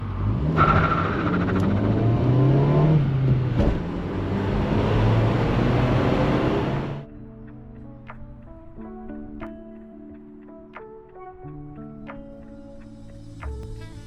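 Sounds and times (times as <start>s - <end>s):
car engine accelerating: 0.0s - 7.0s.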